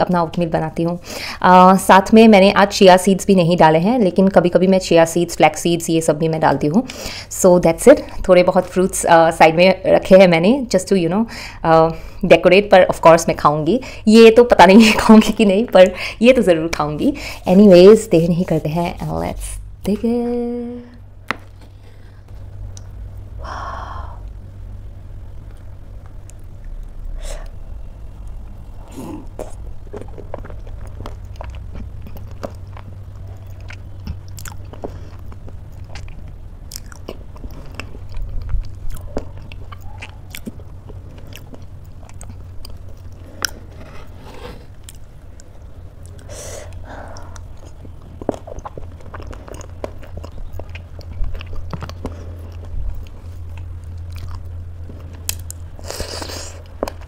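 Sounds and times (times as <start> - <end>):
steady low hum: 0.0 - 57.0
close chewing and crunching: 28.2 - 57.0.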